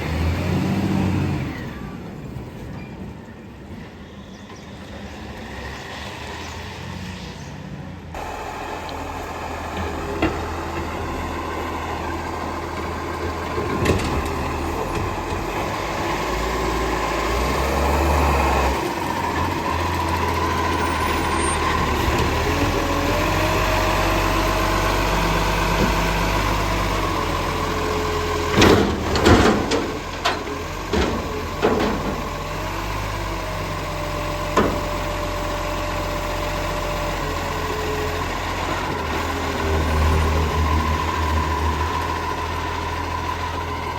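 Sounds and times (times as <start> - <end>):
garbage truck engine running: 8.2 - 43.9.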